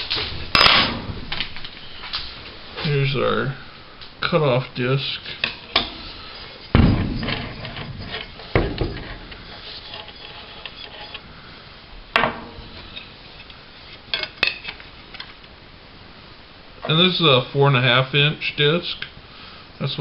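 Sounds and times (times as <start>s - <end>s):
faint rubbing: 4.5s - 11.7s.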